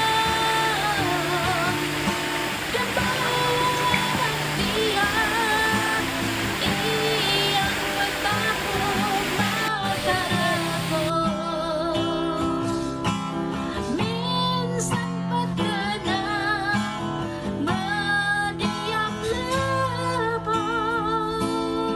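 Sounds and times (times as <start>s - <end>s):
person singing: 0.0s - 12.8s.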